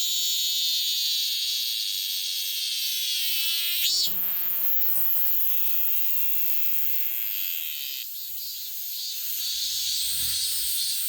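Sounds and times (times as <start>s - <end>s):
cicadas buzzing: 6.8s - 11.0s.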